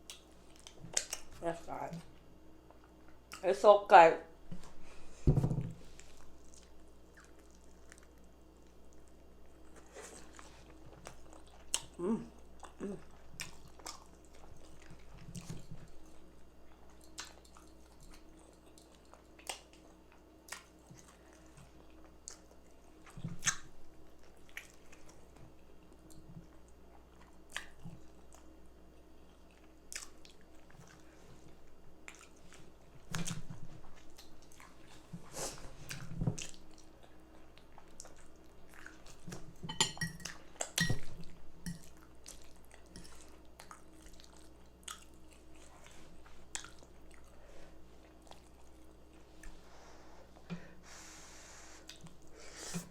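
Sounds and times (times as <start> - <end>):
chewing and biting food: 6.0 - 31.1, 40.2 - 47.4, 48.0 - 49.2.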